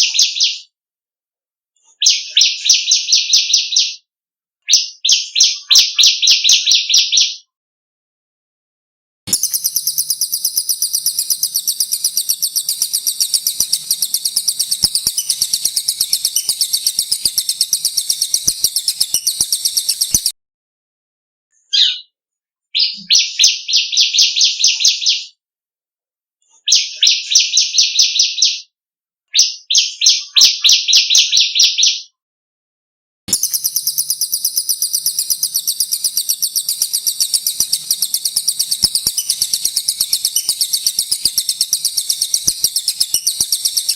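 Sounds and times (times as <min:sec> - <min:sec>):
high rapid bird trill: 0:09.3 - 0:20.3, 0:33.3 - 0:43.9
short bursts of bird trilling: 0:09.3 - 0:20.3, 0:33.3 - 0:43.9.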